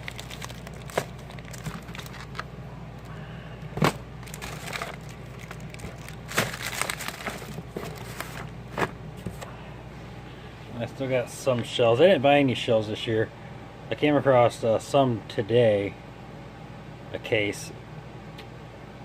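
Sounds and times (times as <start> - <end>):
packages rustling and crinkling: 0.0 - 3.1, 3.8 - 9.5
steady low hum: 0.0 - 19.0.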